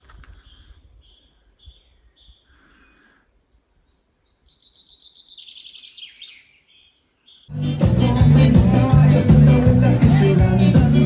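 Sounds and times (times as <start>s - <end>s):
small birds chirping: 0.0s - 8.2s.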